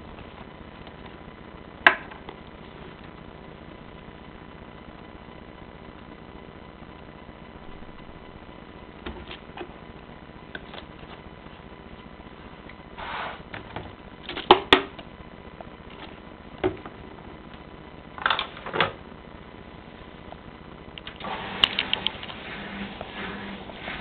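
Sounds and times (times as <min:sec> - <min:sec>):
washing machines humming: 0:18.1 - 0:24.0.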